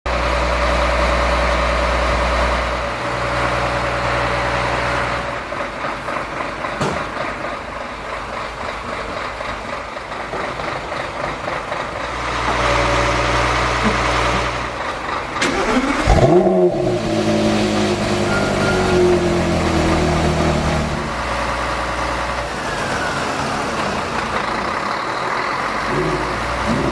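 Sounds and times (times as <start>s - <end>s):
sports car engine running: 15.4s - 18.3s.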